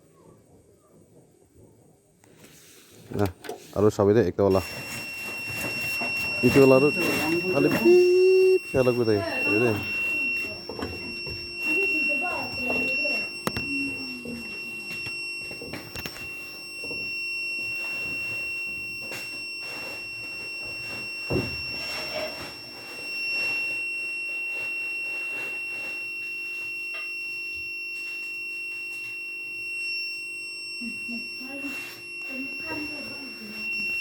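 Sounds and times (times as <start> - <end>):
inverter alarm beep: 3.8 - 34.0.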